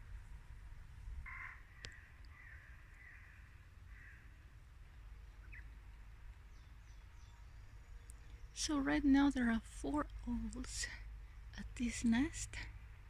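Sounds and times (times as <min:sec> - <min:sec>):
distant bird calling harshly: 0:01.3 - 0:04.3.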